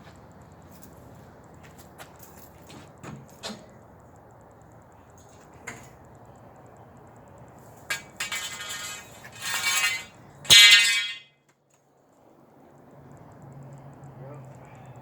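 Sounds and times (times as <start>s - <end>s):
harsh squealing scrapes of pipes: 8.2s - 11.2s
light clicks: 12.7s - 15.0s.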